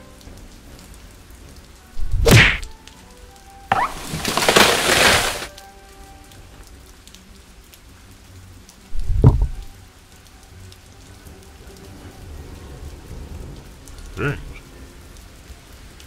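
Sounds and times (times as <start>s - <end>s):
steady rain: 0.0s - 16.0s
loud crash: 3.7s - 5.5s.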